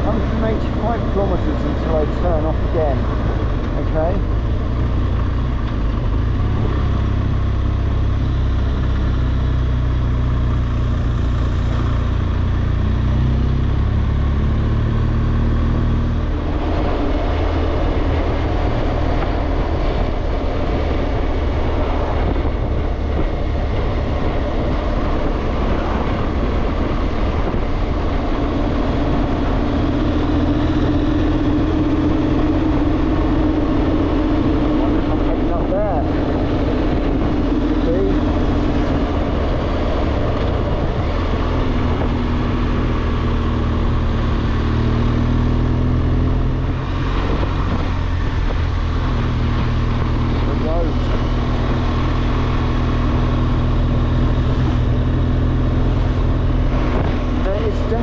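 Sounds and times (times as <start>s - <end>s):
motorcycle engine running: 0.0s - 58.0s
road noise: 0.0s - 58.0s
wind noise: 16.1s - 58.0s.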